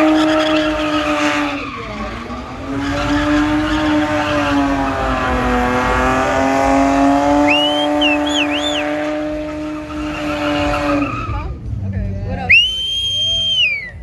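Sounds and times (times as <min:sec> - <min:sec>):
car engine revving high: 0:00.0 - 0:13.8
tyres squealing: 0:00.0 - 0:14.0
rising and falling whistles: 0:07.4 - 0:09.2, 0:12.5 - 0:14.0.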